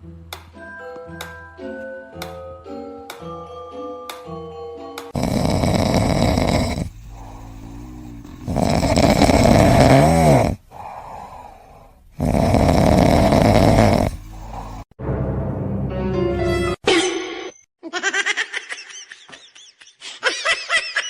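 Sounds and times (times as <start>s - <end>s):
pet snoring loudly: 5.1s - 11.3s, 12.1s - 14.9s.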